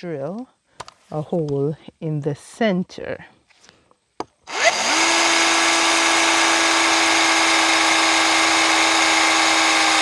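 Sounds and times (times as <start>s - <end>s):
electric drill boring through wood: 4.5s - 10.0s.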